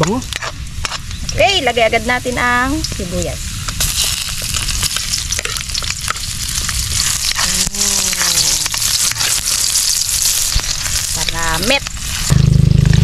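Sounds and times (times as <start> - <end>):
onion sizzling in hot oil: 0.0 - 13.0
metal spatula scraping wok: 3.8 - 12.4.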